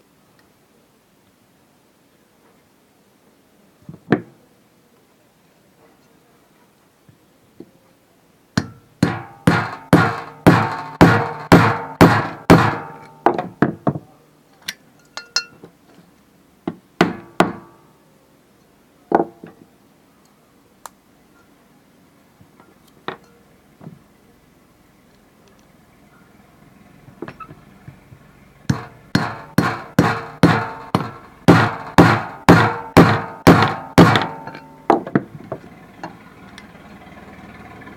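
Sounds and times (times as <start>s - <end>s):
hammer striking metal: 8.6s - 13.5s, 17.0s - 17.8s, 28.7s - 35.2s.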